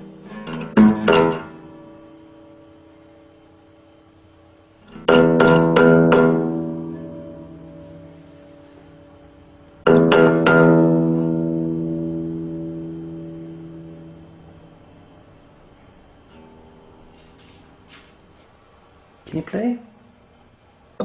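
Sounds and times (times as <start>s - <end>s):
guitar strings plucked: 0.0s - 3.4s, 4.8s - 18.0s.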